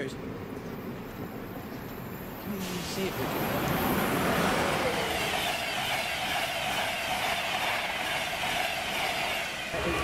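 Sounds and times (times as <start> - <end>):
train passing at speed: 0.0 - 10.0.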